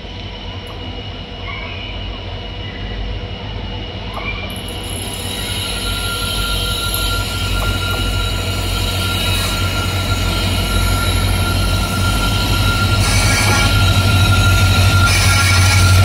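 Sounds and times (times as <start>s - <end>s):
train low rumble: 0.0s - 16.0s
high whine: 4.6s - 16.0s.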